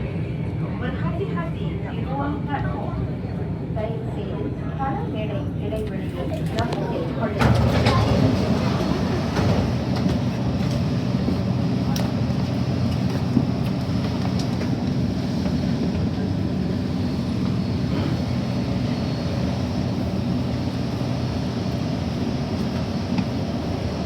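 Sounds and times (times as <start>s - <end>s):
train low hum: 0.0s - 24.0s.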